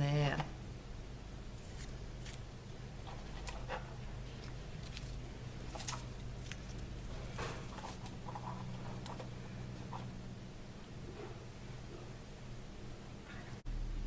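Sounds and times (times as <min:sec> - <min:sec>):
steady low hum: 0:00.0 - 0:14.0
paper rustling: 0:03.1 - 0:09.3.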